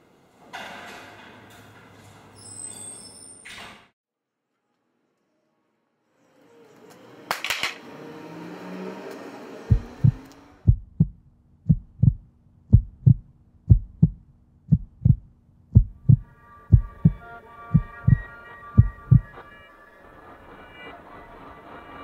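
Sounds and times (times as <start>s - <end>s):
rushing noise: 7.8s - 11.1s
heartbeat thumps: 9.7s - 19.4s.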